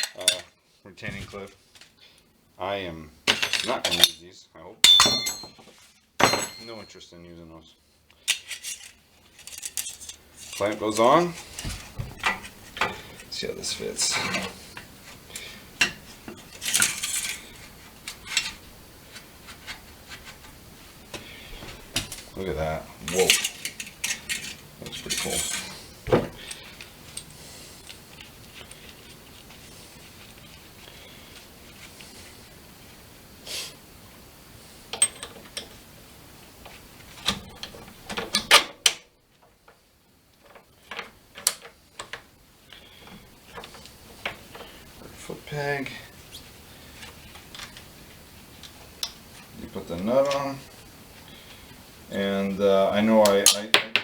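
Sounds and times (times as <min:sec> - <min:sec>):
metal knocks and clinks: 0:04.9 - 0:06.9
metal scraping: 0:15.9 - 0:18.7, 0:22.3 - 0:26.5.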